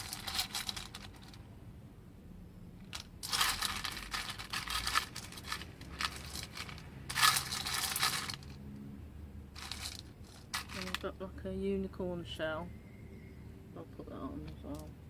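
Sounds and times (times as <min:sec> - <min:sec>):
packaging crinkling and rustling: 0:00.0 - 0:01.4, 0:02.8 - 0:08.6, 0:09.6 - 0:11.0.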